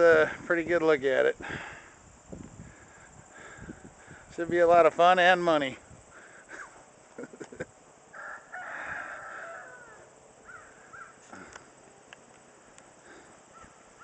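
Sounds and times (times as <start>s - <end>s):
rooster crowing: 8.1s - 11.2s.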